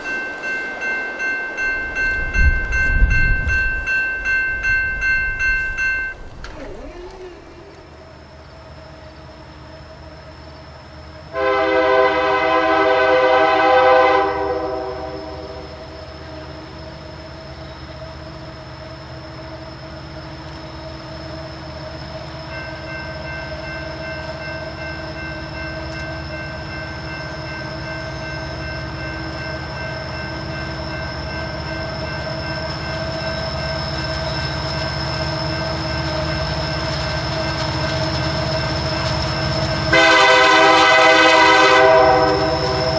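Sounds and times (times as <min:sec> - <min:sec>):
steady high tones: 0:00.0 - 0:06.4, 0:15.3 - 0:40.0
approaching train rumble: 0:00.0 - 0:42.9
locomotive air horn blast: 0:11.4 - 0:15.6, 0:39.9 - 0:42.8.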